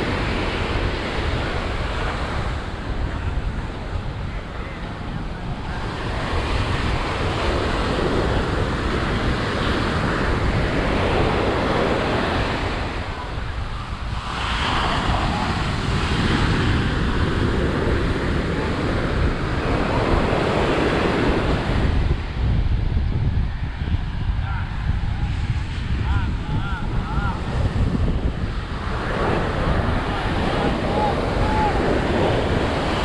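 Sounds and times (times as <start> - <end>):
ocean surf breaking: 0.0 - 33.0
wind rumbling on microphone: 0.0 - 33.0.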